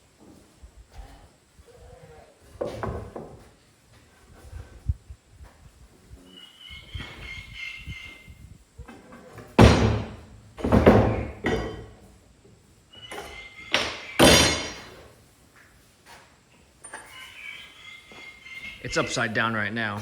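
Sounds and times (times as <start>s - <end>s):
heavy wooden thuds: 9.6s - 11.7s.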